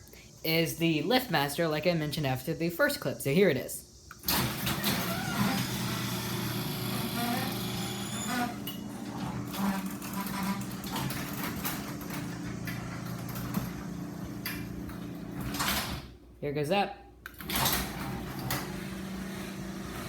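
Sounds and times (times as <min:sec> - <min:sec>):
garage door opener motor humming: 0:04.2 - 0:16.1, 0:17.3 - 0:20.0.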